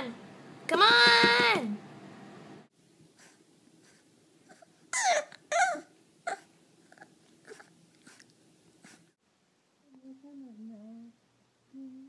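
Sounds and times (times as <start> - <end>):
pet animal high-pitched cries: 4.5 - 6.5.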